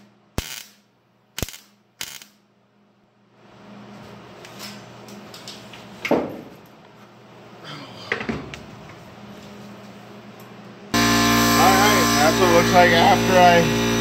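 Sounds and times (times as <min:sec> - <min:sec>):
welder crackling bursts: 0:00.0 - 0:02.4, 0:11.0 - 0:14.0
steady low hum: 0:00.0 - 0:14.0.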